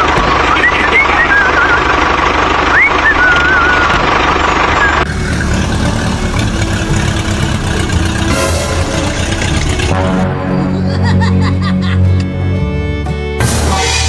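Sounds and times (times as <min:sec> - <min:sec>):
small tractor motor running: 0:00.0 - 0:10.7.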